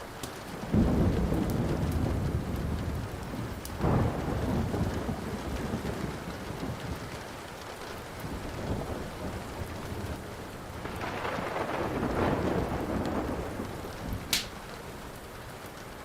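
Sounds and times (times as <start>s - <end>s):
faint wood fire crackles: 0.0s - 16.0s
steady rain: 0.0s - 16.0s
thunder rumbling: 0.7s - 15.7s.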